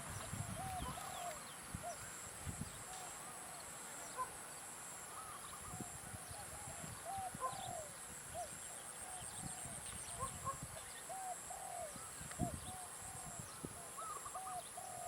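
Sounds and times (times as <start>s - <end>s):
birds calling: 0.0s - 3.0s, 5.1s - 15.0s
steady high hiss: 0.0s - 15.0s.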